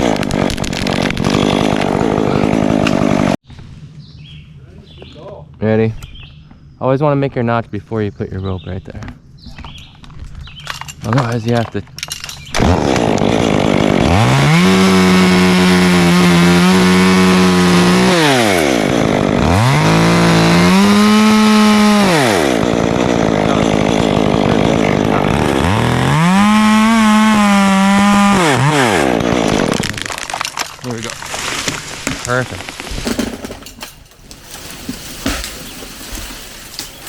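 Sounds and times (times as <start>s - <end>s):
chainsaw revving and idling: 0.0s - 3.4s, 12.6s - 30.3s.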